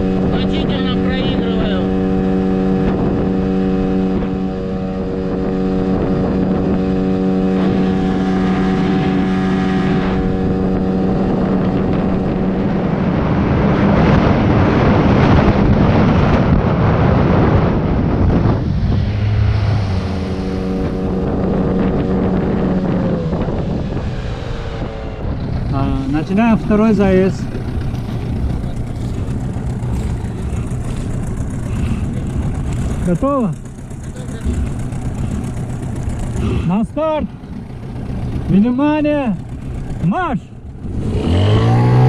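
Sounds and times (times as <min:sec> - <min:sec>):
outboard motor running flat out: 0:00.0 - 0:42.0
rushing noise: 0:16.1 - 0:33.2.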